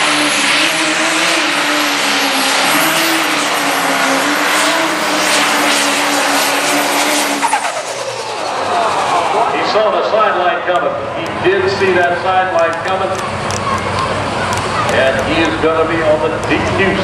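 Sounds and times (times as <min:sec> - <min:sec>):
diesel engine at full throttle: 0:00.0 - 0:17.0.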